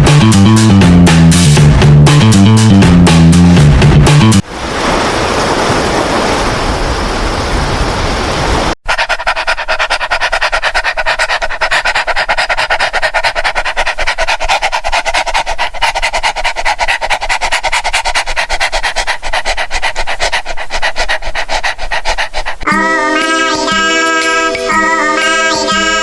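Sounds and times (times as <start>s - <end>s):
dog panting rapidly: 8.8s - 26.0s.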